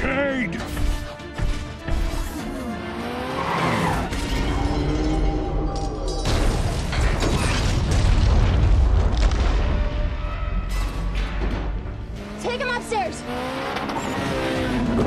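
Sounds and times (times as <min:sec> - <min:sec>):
film score music: 0:00.0 - 0:15.0
vehicles with skidding tyres: 0:02.0 - 0:05.6, 0:13.1 - 0:15.0
heavy crash: 0:06.2 - 0:11.9.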